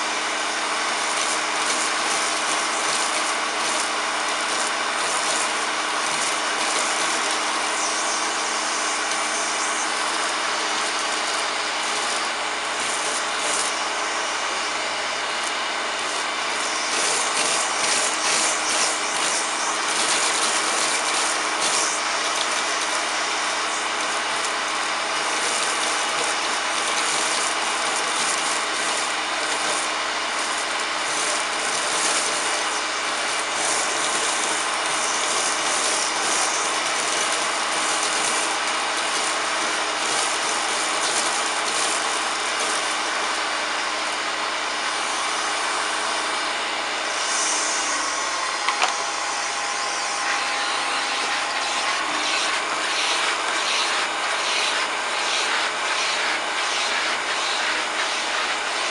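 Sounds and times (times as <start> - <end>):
vacuum cleaner running: 0.0 - 58.9
cornflakes rattling up a hose: 0.9 - 14.0, 16.0 - 43.3.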